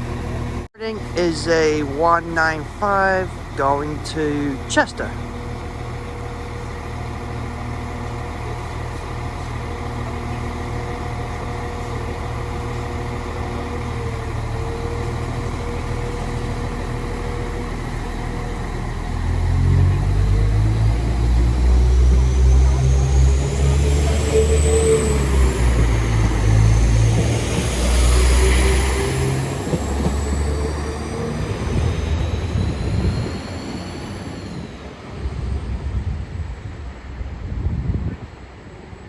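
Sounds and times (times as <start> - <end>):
train diesel engine hum: 0.0 - 39.0.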